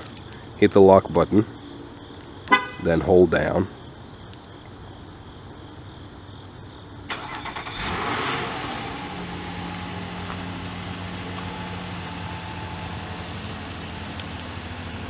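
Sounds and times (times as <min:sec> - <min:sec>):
car engine revving and idling: 0:07.1 - 0:15.0
car starter cranking: 0:07.1 - 0:15.0.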